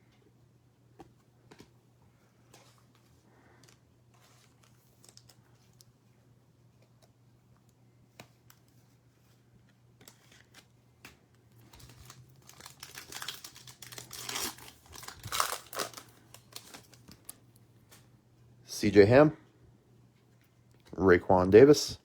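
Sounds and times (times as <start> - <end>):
wrapper torn open and crinkled: 11.7 - 17.4.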